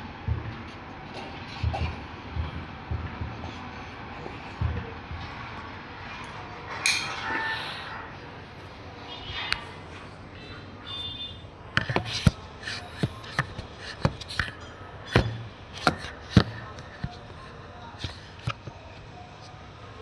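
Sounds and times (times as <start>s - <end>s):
tools tapping and clicking on metal: 6.9s - 7.8s.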